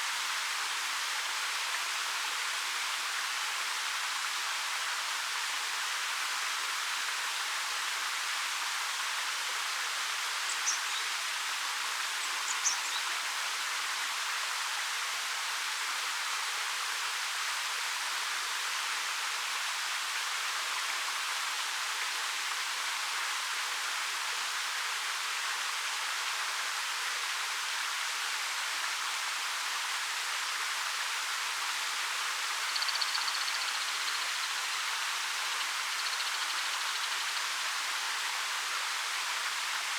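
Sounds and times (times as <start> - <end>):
bird chirping: 32.7 - 34.5, 35.5 - 37.4.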